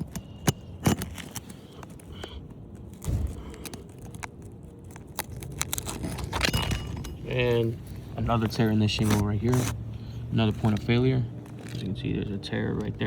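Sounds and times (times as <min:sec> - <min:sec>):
metal tool scraping shingle: 0:00.0 - 0:09.8.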